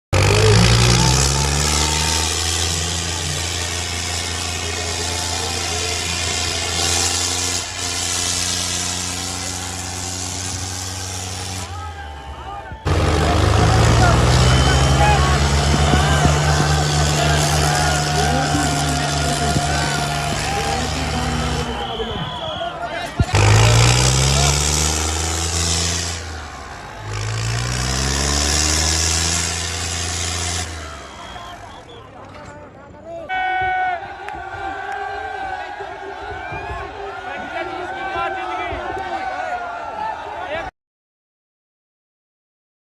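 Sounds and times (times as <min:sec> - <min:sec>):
tractor diesel engine running: 0:00.1 - 0:32.3.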